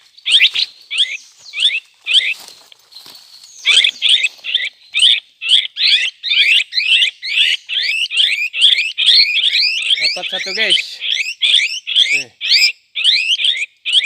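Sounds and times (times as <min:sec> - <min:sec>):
bird chattering calls: 0:00.0 - 0:02.5, 0:03.6 - 0:14.0.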